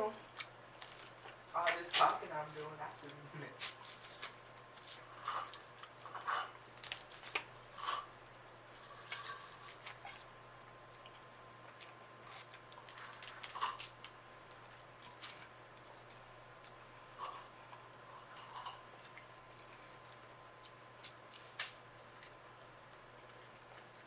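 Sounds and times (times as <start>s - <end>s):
shells crackling and snapping: 3.6s - 5.0s, 6.2s - 7.6s, 11.7s - 16.2s
chewing and mouth sounds: 10.9s - 24.0s.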